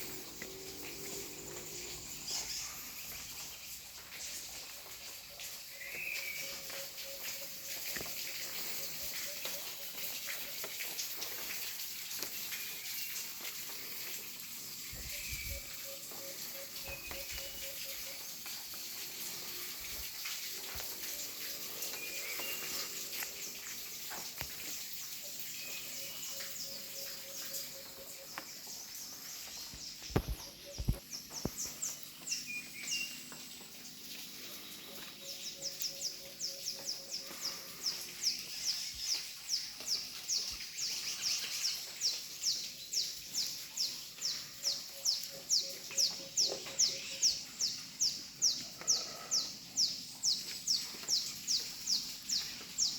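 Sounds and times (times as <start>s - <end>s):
birds calling: 12.9s - 52.9s.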